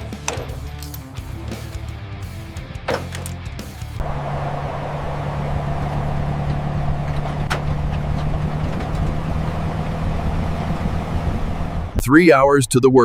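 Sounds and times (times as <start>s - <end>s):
vehicle engine droning: 2.5s - 12.0s
road noise: 2.8s - 12.1s.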